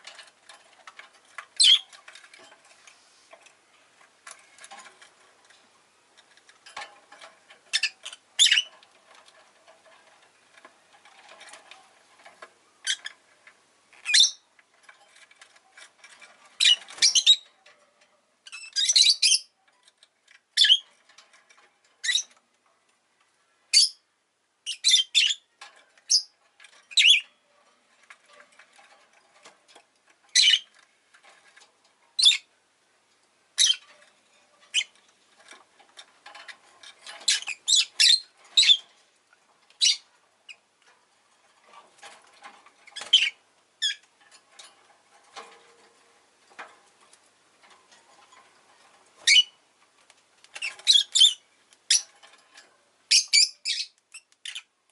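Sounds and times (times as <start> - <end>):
rustling: 0.0 - 23.6, 25.5 - 54.9
quiet bird chatter: 7.0 - 17.8, 18.4 - 22.4, 23.2 - 29.6, 30.2 - 32.6, 50.5 - 54.9
lovebirds chirping: 7.7 - 8.7, 14.0 - 14.5, 18.5 - 19.6, 24.6 - 27.4, 30.3 - 30.7, 32.2 - 32.5, 33.6 - 33.8, 37.3 - 38.9, 39.8 - 40.6, 42.9 - 44.0, 49.2 - 49.6, 50.6 - 52.1, 53.1 - 54.7.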